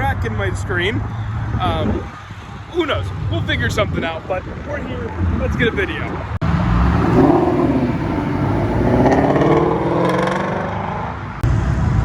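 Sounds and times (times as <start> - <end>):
car engine revving: 6.4 - 11.4.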